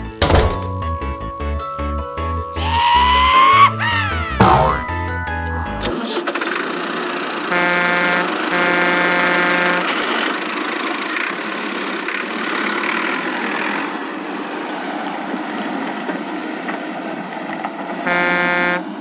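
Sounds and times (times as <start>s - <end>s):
cartoon engine sound effect: 2.6s - 6.2s
horn-like steady tone: 7.5s - 10.0s, 18.1s - 18.9s.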